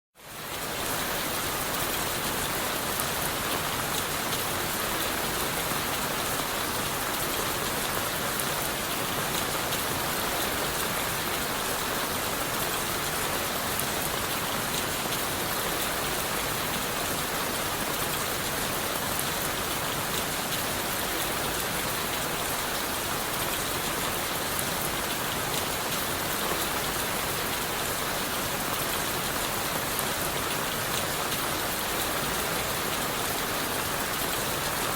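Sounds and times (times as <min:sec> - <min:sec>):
rain on leaves and wood: 0:00.2 - 0:34.9.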